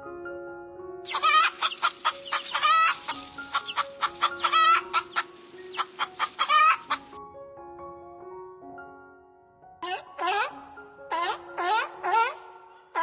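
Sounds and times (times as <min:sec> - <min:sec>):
soft background music: 0:00.0 - 0:13.0
chicken clucking: 0:01.1 - 0:07.2, 0:09.8 - 0:13.0.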